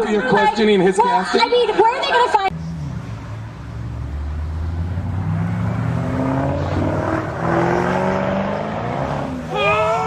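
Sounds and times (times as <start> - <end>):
car engine accelerating hard: 2.6 - 10.0.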